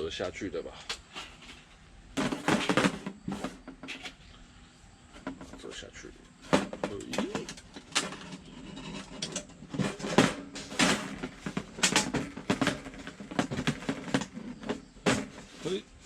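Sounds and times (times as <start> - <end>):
metal plates clinking and knocking: 1.3 - 4.2, 6.3 - 15.8.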